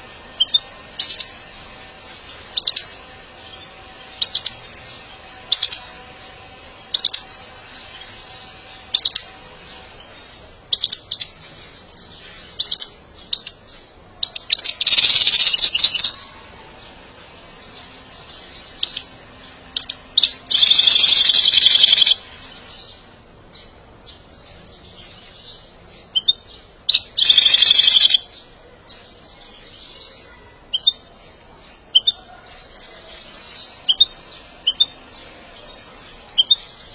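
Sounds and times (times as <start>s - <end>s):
goldfinch chirps: 0.4s - 9.4s, 14.2s - 16.2s, 17.4s - 23.0s, 24.4s - 35.0s
goldfinch rapid twittering: 19.8s - 22.2s, 26.9s - 28.2s.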